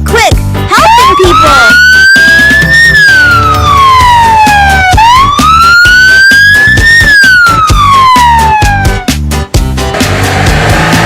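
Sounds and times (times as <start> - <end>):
music with steady beat: 0.0 - 11.0
siren wailing: 0.7 - 9.1.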